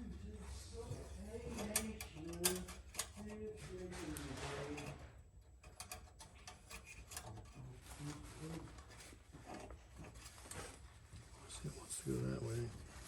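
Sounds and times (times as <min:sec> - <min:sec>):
quiet indistinct talking: 0:00.0 - 0:05.2.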